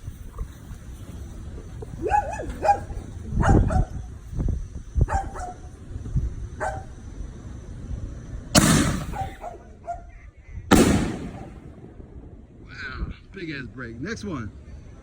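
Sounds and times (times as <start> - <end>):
dog barking: 2.0 - 4.1, 5.0 - 5.7, 6.6 - 6.9, 9.0 - 10.2
firework boom: 8.6 - 9.4, 10.7 - 13.1.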